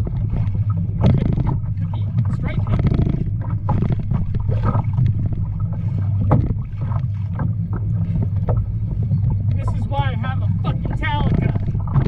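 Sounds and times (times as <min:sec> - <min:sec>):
low rumble: 0:00.0 - 0:12.0
water slapping kayak hull: 0:00.0 - 0:12.0
wind buffeting microphone: 0:00.0 - 0:12.0.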